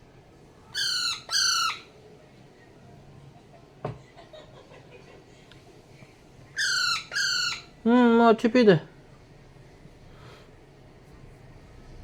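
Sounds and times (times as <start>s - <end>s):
parrot squawking: 0.7s - 1.9s, 6.6s - 7.8s.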